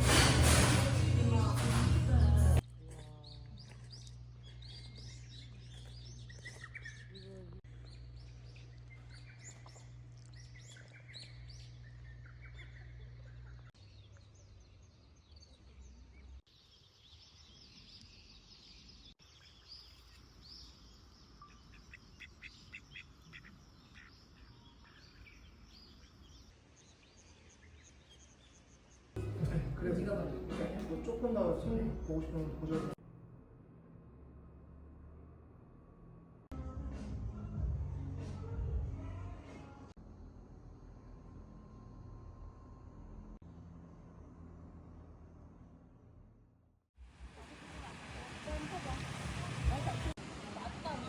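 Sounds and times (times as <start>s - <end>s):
small birds chirping: 2.6s - 29.2s.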